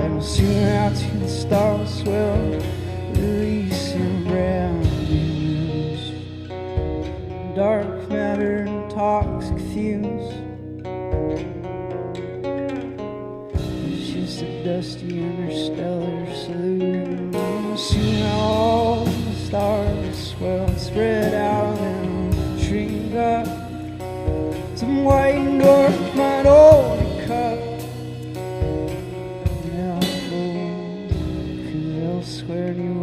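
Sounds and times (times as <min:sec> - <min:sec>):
drum kit and cymbals: 0:00.0 - 0:07.6, 0:13.6 - 0:14.6, 0:17.3 - 0:33.0
guitars playing: 0:00.0 - 0:33.0.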